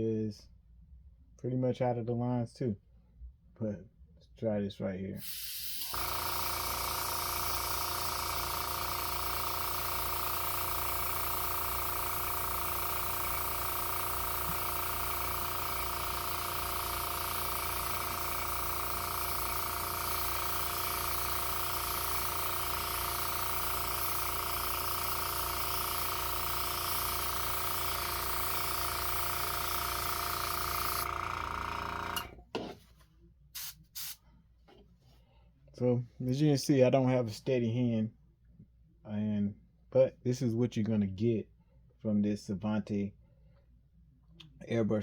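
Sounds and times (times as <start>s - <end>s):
airbrush hissing: 5.2s - 31.2s, 33.6s - 34.2s
air compressor humming: 5.2s - 32.6s, 33.6s - 34.2s.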